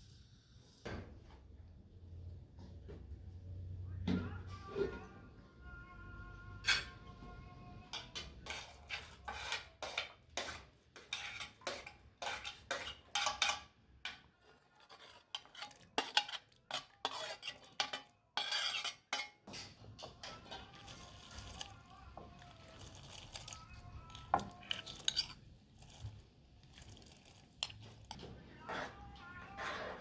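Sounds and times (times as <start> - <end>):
utensil scraping in cooking pot: 7.9 - 30.0.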